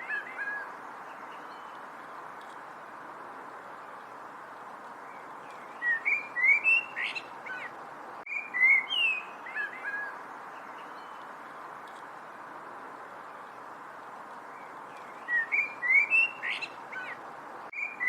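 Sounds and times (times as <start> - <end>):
steady background hiss: 0.0 - 18.0
songbird whistling: 5.8 - 7.7, 8.3 - 10.2, 15.1 - 17.2, 17.8 - 18.0.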